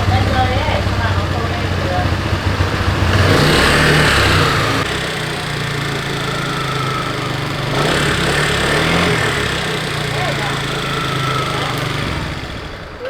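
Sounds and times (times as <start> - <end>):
scooter engine idling: 0.0 - 13.0.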